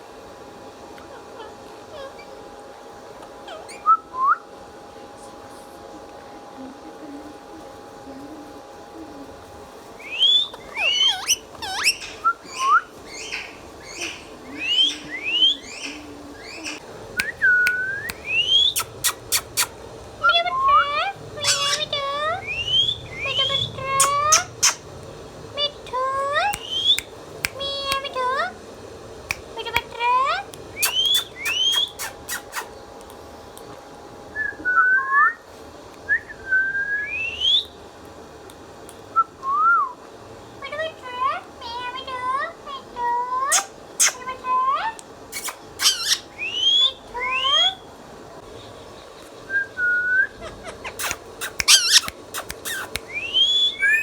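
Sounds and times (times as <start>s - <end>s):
parrot whistled calls: 3.5s - 4.5s, 10.0s - 24.9s, 26.4s - 27.1s, 30.7s - 32.7s, 36.1s - 37.8s, 43.5s - 44.3s, 45.3s - 47.8s, 49.5s - 54.0s
parakeet clicks: 10.6s - 20.2s, 25.9s - 28.5s, 29.2s - 33.7s, 50.9s - 54.0s
sharp clicks: 51.0s - 53.3s.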